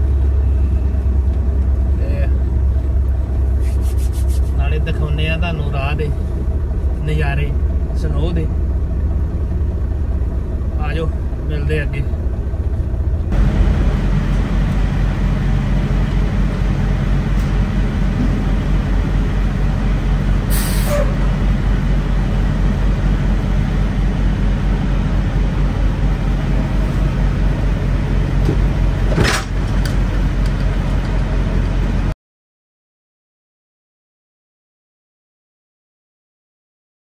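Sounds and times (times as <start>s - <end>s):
truck engine droning: 0.0s - 32.2s
brief air hisses: 20.5s - 21.1s.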